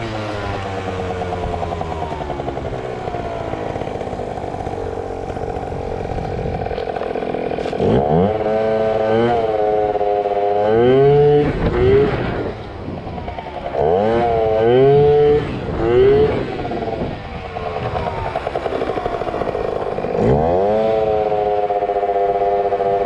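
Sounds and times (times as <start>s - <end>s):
scooter engine revving: 0.0s - 23.0s.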